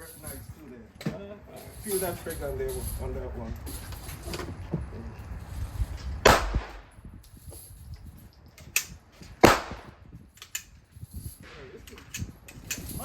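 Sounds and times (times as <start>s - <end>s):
handgun shots: 6.2s - 6.9s, 8.8s - 10.0s.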